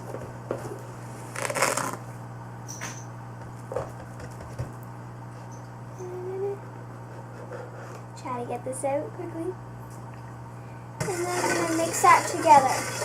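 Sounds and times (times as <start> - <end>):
steady low hum: 0.0 - 13.0
spoon scraping powder: 11.0 - 13.0.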